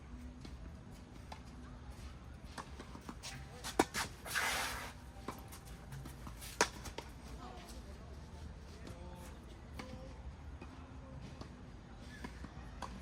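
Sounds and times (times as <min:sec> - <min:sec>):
shoes sliding on court: 0:03.2 - 0:05.5.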